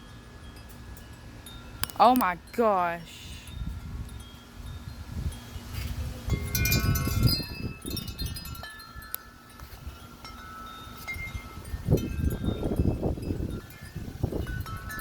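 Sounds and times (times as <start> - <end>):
metal wind chimes ringing: 0.0 - 15.0
wind buffeting microphone: 3.4 - 8.7, 11.2 - 15.0.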